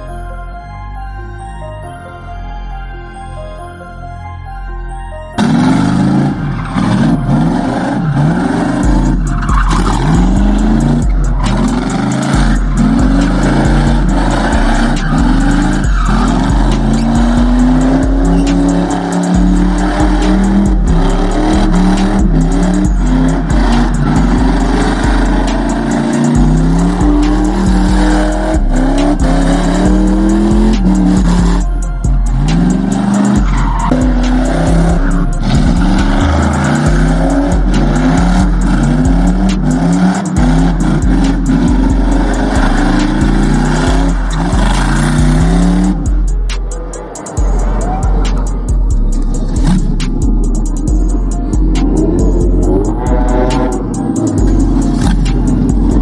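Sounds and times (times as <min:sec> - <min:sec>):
music with heavy bass: 0:00.0 - 0:56.0
car engines revving: 0:05.4 - 0:56.0
tires squealing: 0:05.4 - 0:56.0.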